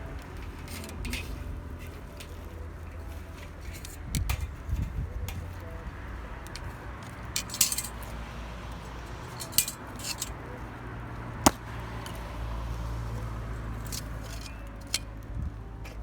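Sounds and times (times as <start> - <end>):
cookware and utensils clattering: 7.2 - 8.2, 9.2 - 10.4.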